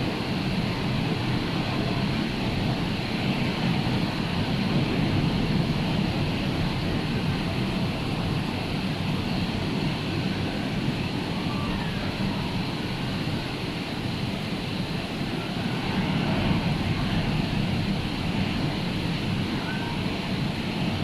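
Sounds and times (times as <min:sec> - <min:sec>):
rough sea surf roaring: 0:00.0 - 0:21.0.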